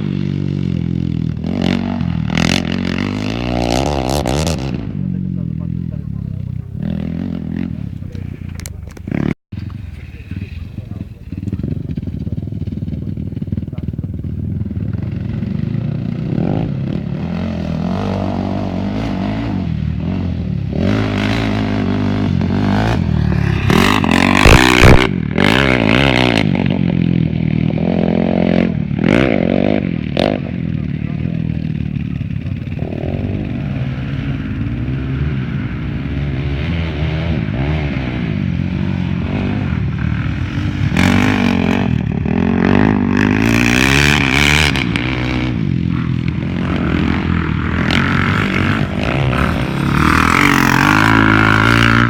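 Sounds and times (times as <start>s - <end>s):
motorcycle engines revving: 0.0s - 52.0s
motorcycle passing close: 0.0s - 52.0s.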